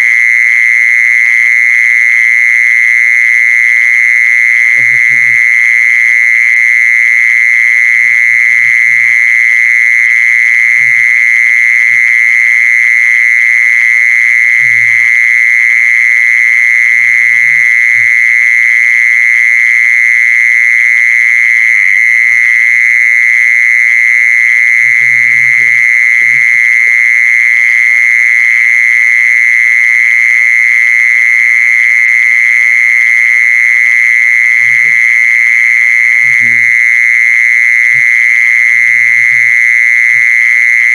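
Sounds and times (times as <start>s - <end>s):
insect trilling: 4.6s - 5.7s, 8.0s - 18.2s, 24.8s - 27.2s, 33.9s - 40.9s.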